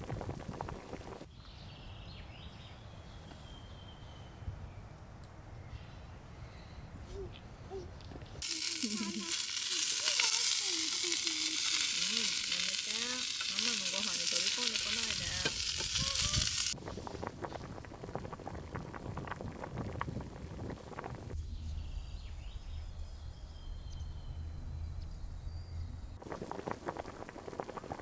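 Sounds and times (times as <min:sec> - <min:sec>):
faint voices: 0:07.2 - 0:16.7
food sizzling in a pan: 0:08.4 - 0:16.8.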